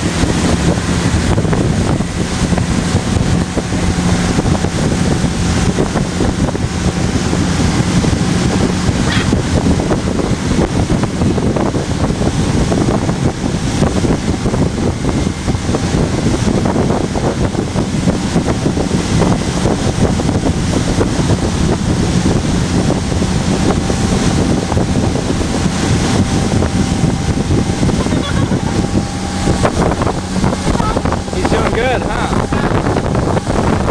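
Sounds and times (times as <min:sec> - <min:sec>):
motorboat engine hum: 0:00.0 - 0:33.9
wind buffeting microphone: 0:00.0 - 0:33.9.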